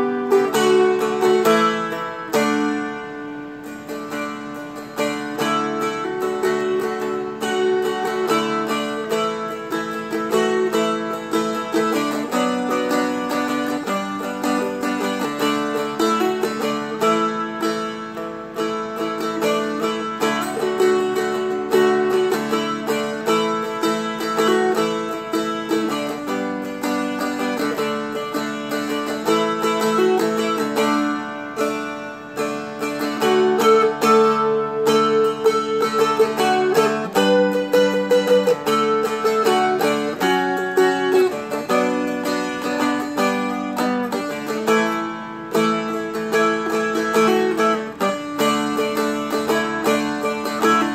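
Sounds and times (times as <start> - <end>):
strummed dulcimer chords: 0.0 - 50.9.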